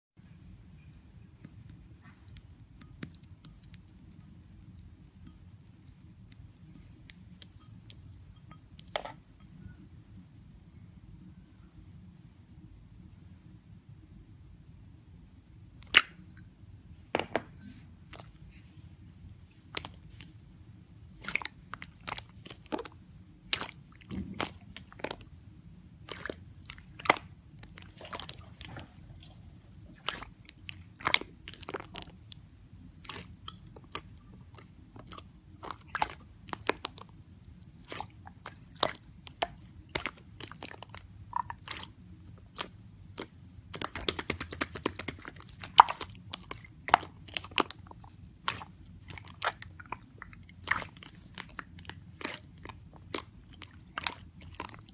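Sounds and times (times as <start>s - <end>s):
slime clicking and crackling: 33.0s - 54.9s.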